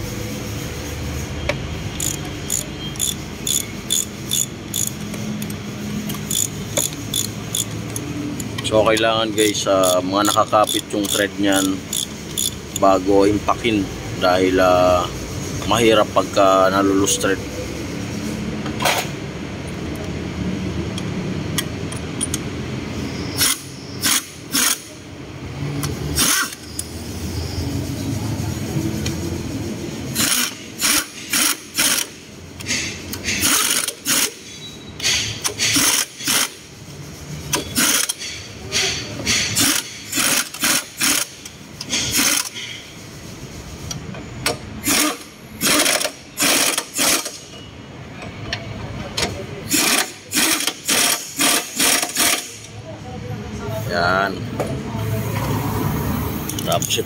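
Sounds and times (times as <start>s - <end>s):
impact wrench bursts: 1.2s - 13.7s, 21.5s - 25.0s, 25.8s - 27.3s, 30.0s - 43.3s, 44.4s - 47.6s, 49.6s - 52.8s.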